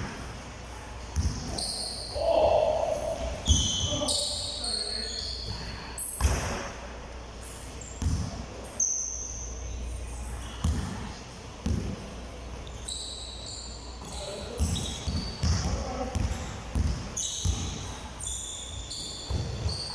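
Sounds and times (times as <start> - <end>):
thuds ringing in large room: 5.4 - 6.8, 19.0 - 19.9.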